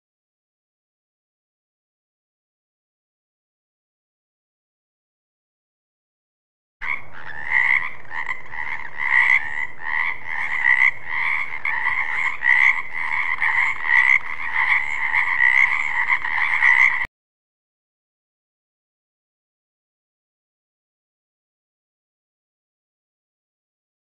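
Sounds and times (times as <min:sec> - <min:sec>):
frogs croaking: 0:06.8 - 0:17.1.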